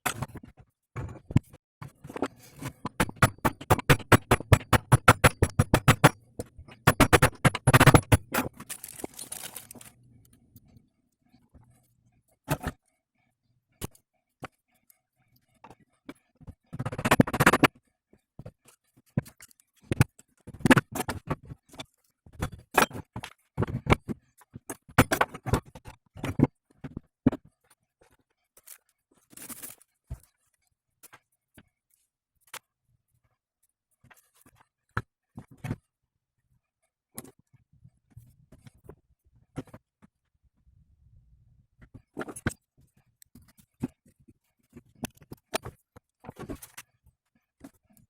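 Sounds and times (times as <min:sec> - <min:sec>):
metal tools clinking and scraping: 0:08.3 - 0:09.9.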